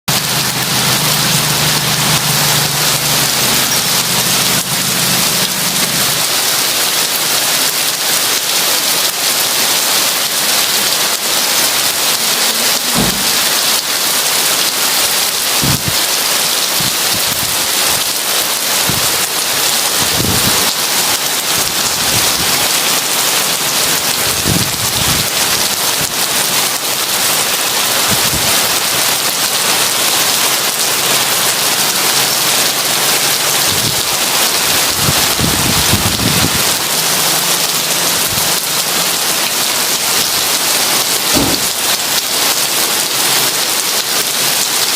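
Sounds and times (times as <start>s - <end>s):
heavy rain pouring: 0.0s - 44.9s.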